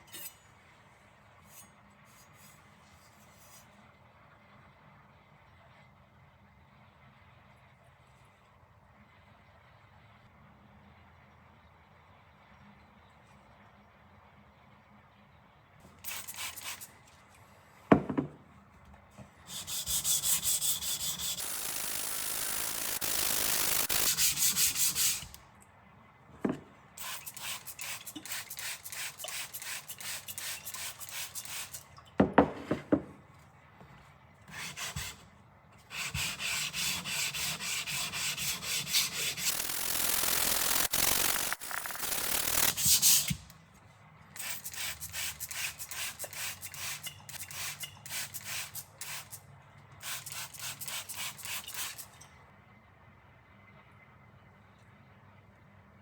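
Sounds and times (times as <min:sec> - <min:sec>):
abrasive scraping knife blade: 0:00.0 - 0:00.4, 0:01.5 - 0:02.5.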